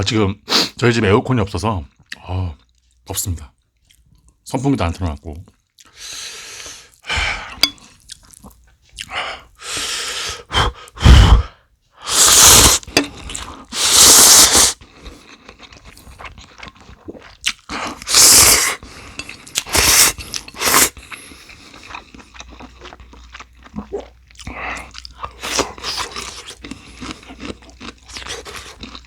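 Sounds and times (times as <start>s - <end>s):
quiet chewing: 1.9s - 4.4s, 5.4s - 10.4s, 12.2s - 13.9s, 14.7s - 29.0s
loud slurping of noodles: 11.0s - 14.8s, 17.8s - 18.8s, 19.6s - 21.0s.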